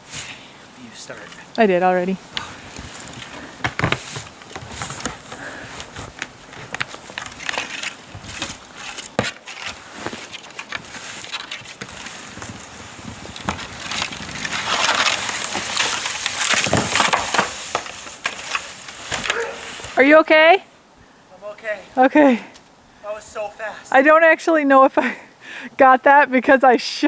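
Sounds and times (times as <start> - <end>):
kayak sliding on snow: 2.2 - 20.3.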